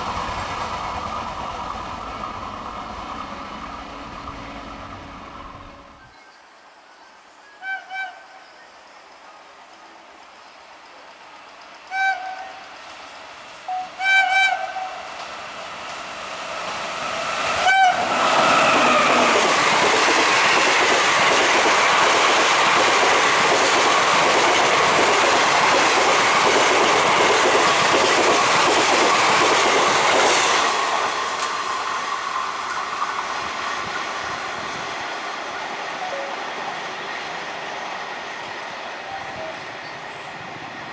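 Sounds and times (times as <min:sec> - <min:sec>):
train wheels rushing on rail: 0:00.0 - 0:06.1, 0:09.8 - 0:40.9
train horn blasts: 0:03.6 - 0:06.1, 0:13.7 - 0:15.1, 0:17.6 - 0:19.4.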